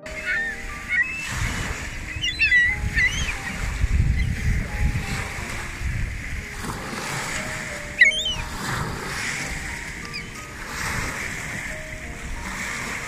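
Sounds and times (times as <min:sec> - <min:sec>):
birds chirping: 0:00.0 - 0:05.5, 0:07.2 - 0:10.6
lake waves: 0:00.0 - 0:13.0
wind rumble: 0:00.0 - 0:13.0.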